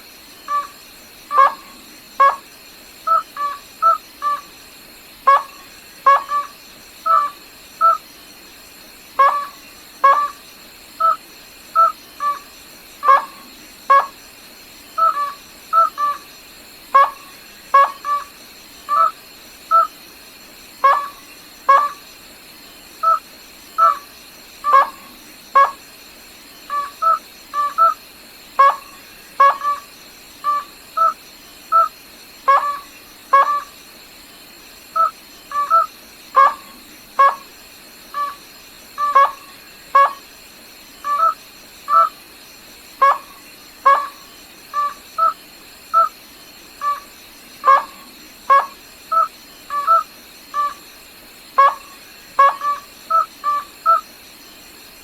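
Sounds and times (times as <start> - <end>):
crake calling: 0.4 - 2.4, 3.1 - 4.5, 5.3 - 8.0, 9.2 - 10.4, 11.0 - 14.2, 14.9 - 16.3, 17.0 - 19.9, 20.8 - 22.0, 23.8 - 25.8, 26.7 - 28.0, 28.6 - 33.8, 34.9 - 37.5, 38.1 - 40.3, 41.0 - 42.2, 43.0 - 46.2, 46.8 - 50.9, 51.6 - 54.1.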